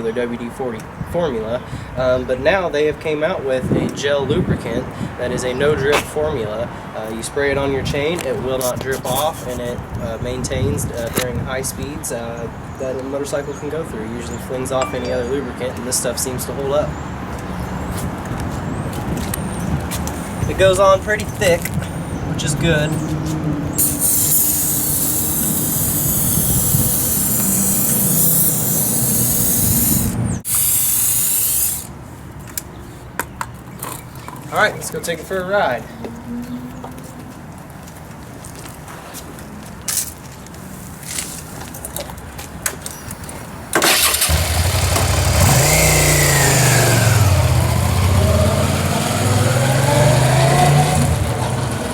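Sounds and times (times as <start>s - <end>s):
motorcycle engine starting and revving: 23.7s - 31.9s, 43.8s - 51.9s
aerosol can spraying: 23.8s - 31.9s.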